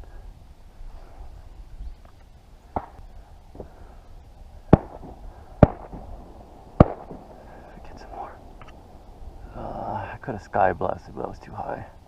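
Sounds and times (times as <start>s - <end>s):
shotgun shots: 4.7s - 6.1s, 6.8s - 7.4s.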